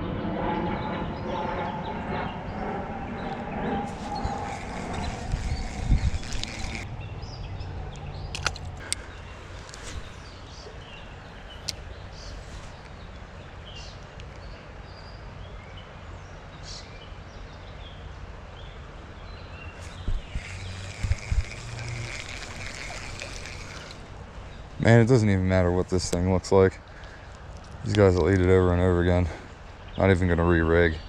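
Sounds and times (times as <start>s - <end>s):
sharp clicks: 3.9s - 6.9s, 7.9s - 10.0s, 19.8s - 24.1s.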